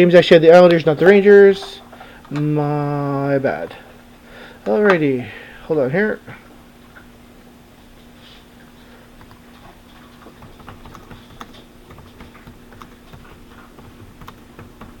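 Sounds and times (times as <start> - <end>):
steady low hum: 0.0 - 15.0
typing on a computer keyboard: 9.2 - 9.4, 10.2 - 15.0.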